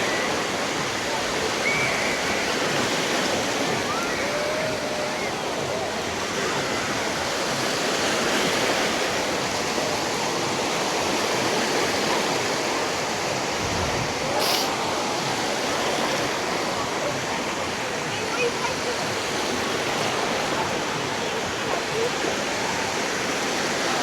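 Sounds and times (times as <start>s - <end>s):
waves breaking on a beach: 0.0s - 24.0s.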